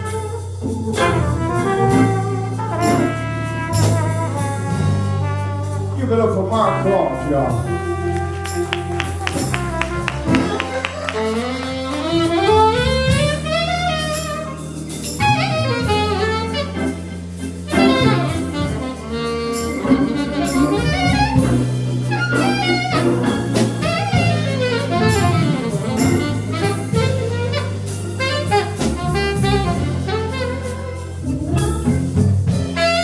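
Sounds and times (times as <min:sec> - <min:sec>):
drum kit: 0:00.0 - 0:33.0
walking bass line: 0:00.0 - 0:33.0
saxophone runs: 0:07.8 - 0:14.4, 0:15.2 - 0:23.0.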